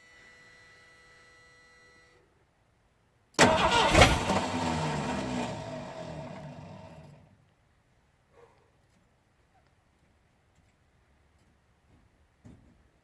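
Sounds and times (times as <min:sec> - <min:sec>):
engine cranking and failing to start: 0:03.4 - 0:07.0.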